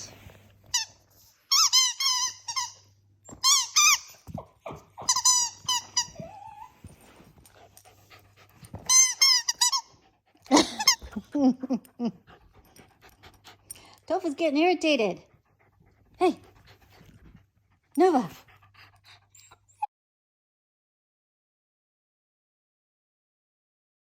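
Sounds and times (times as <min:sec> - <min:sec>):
squeaky dog toy squeaking: 0:00.7 - 0:06.8, 0:08.8 - 0:10.0, 0:10.6 - 0:11.2.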